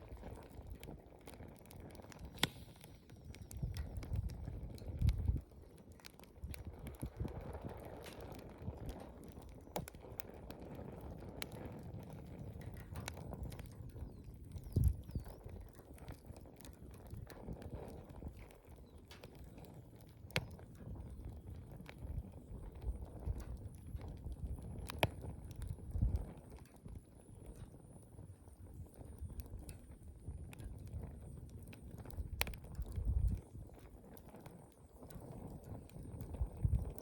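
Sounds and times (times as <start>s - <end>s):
campfire flames rushing: 0.0s - 37.0s
fire crackling and popping: 0.0s - 37.0s.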